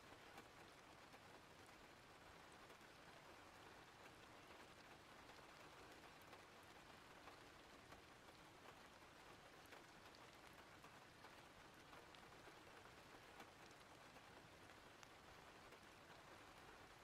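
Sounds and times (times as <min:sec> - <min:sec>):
faint rain hiss: 0:00.0 - 0:17.0.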